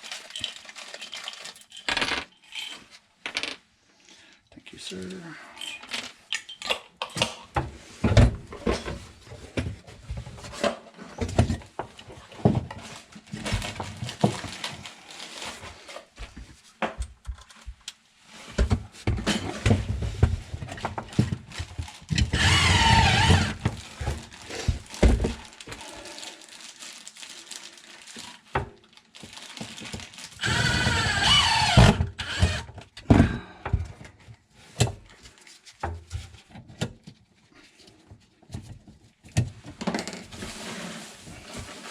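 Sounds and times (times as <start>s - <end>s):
power tool motor whirring: 22.3s - 23.6s, 30.4s - 32.7s.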